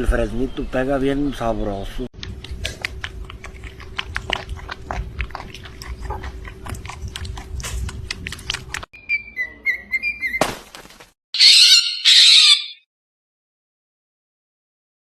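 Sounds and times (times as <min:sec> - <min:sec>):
animal chewing crunchily: 0:02.2 - 0:08.9.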